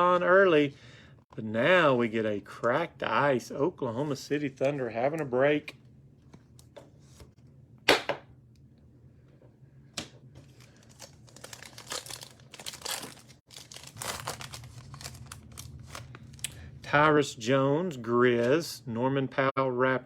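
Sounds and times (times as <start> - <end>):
plastic wrapper crinkling: 10.4 - 16.6
plastic wrapper ripping: 10.4 - 16.6.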